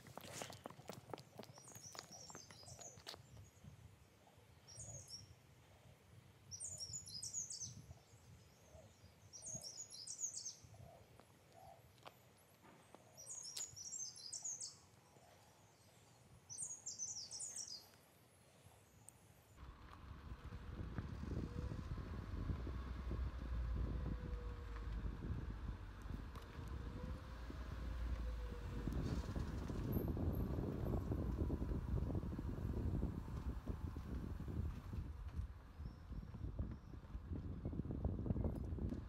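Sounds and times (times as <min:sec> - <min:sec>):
footsteps on paved path: 0:00.0 - 0:03.5, 0:11.1 - 0:14.2, 0:33.1 - 0:37.6
songbird twittering: 0:01.4 - 0:03.6, 0:13.0 - 0:15.5, 0:16.5 - 0:18.0.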